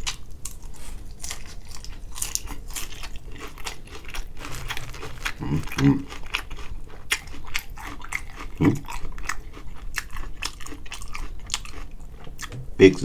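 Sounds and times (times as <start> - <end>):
chewing crispy food: 0.0 - 13.0
low hum from person: 11.4 - 13.0.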